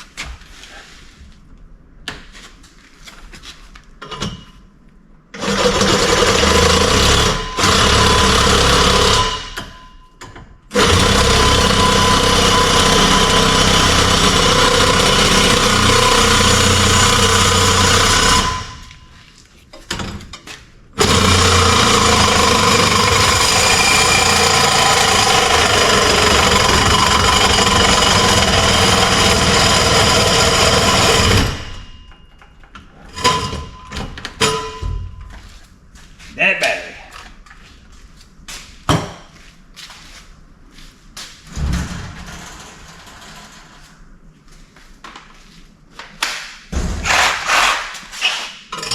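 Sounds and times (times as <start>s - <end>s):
power tool on steel pipe: 10.8s - 18.8s, 21.0s - 31.8s.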